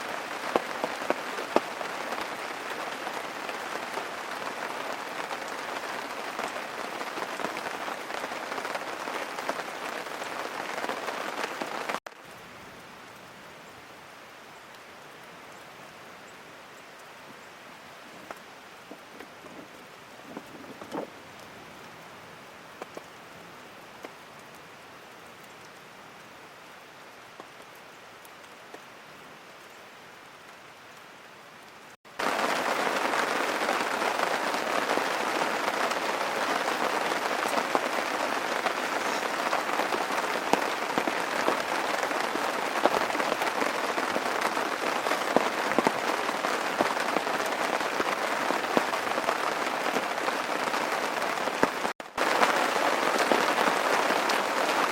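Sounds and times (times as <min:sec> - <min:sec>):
steady rain falling: 0:00.0 - 0:54.9
rain drop clicks: 0:22.7 - 0:26.4, 0:27.1 - 0:28.9.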